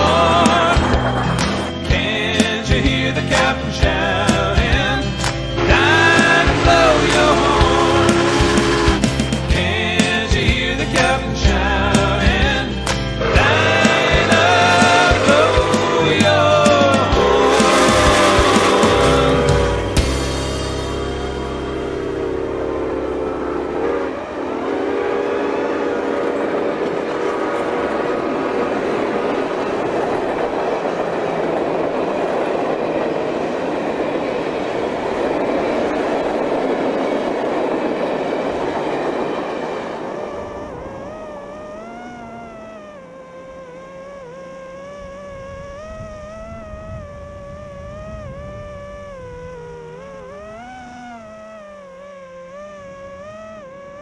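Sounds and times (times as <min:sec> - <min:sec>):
train rumbling past: 0:00.0 - 0:54.0
drone motor whine: 0:13.2 - 0:31.8, 0:38.5 - 0:54.0.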